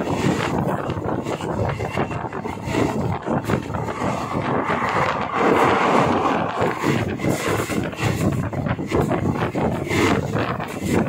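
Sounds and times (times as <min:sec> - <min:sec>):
train wheels rumbling: 0:00.0 - 0:11.0
wind rushing: 0:01.0 - 0:09.7.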